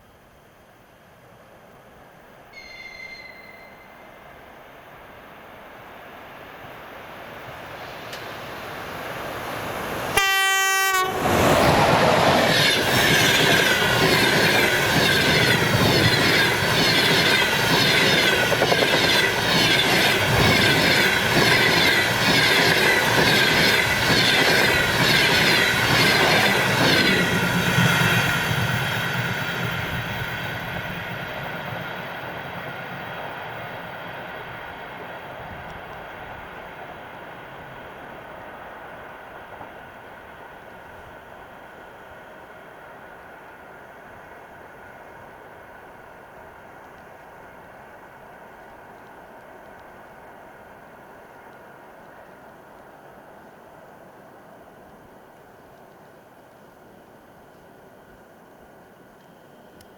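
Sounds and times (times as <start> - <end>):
train passing: 0.6 - 59.9
train horn blast: 10.1 - 11.4.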